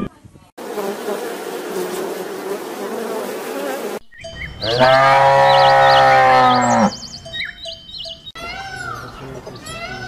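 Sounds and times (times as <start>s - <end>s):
bumblebee buzzing: 0.6s - 4.0s
bird chirps: 4.0s - 10.0s
cow mooing: 4.6s - 7.0s.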